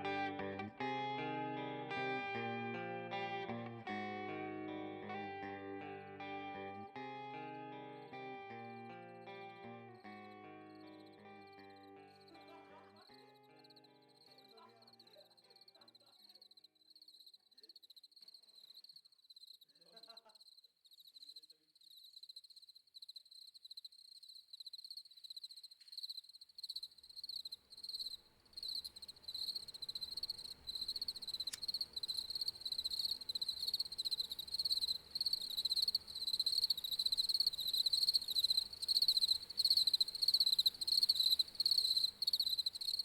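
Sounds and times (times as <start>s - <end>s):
crickets chirping: 3.9s - 43.0s.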